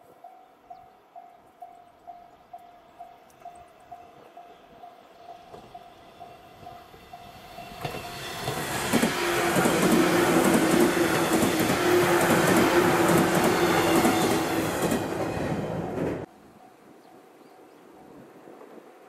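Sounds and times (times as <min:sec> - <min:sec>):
train hum: 0:00.0 - 0:19.0
train wheels rumbling on rails: 0:01.6 - 0:16.3.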